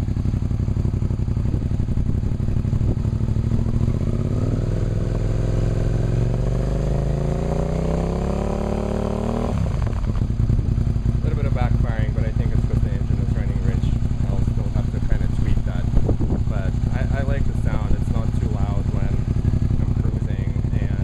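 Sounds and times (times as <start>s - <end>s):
motorcycle engine idling and revving: 0.0s - 21.0s.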